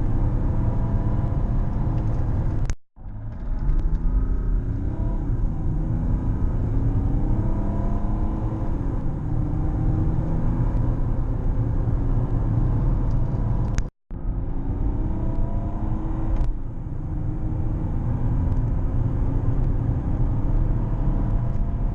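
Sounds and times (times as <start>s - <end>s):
diesel engine accelerating hard: 0.0s - 21.9s.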